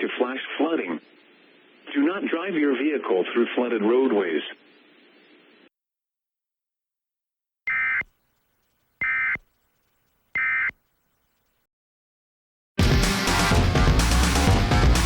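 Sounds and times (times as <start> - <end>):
buzzy digital chirps: 7.7 - 8.1, 9.0 - 9.4.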